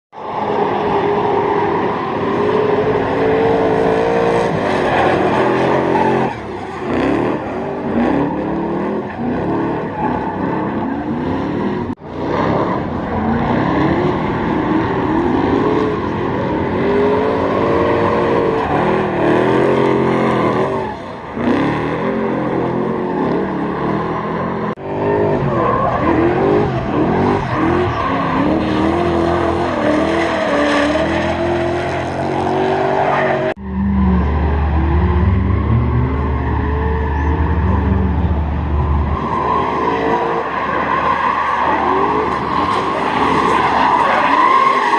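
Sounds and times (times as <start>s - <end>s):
tyre squeal: 38.8s - 44.9s.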